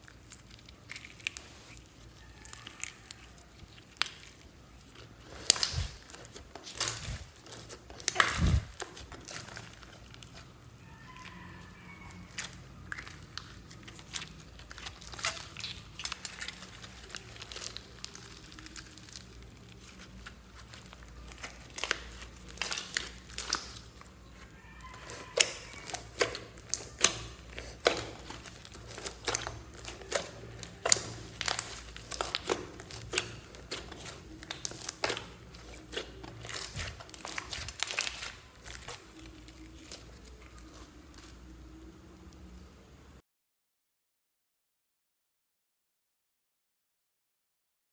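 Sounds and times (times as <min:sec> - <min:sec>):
slime squishing and popping: 0:00.0 - 0:41.7.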